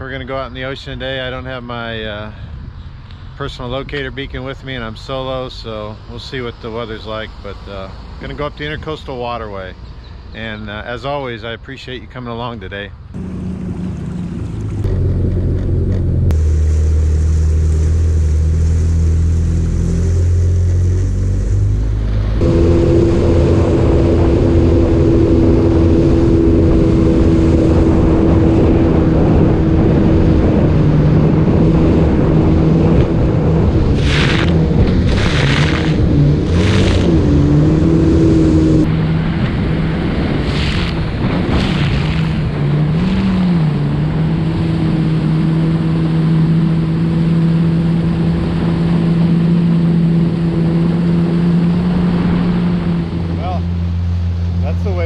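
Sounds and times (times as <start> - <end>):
watercraft engine drone: 0.0 - 55.0
rushing water and spray: 16.3 - 55.0.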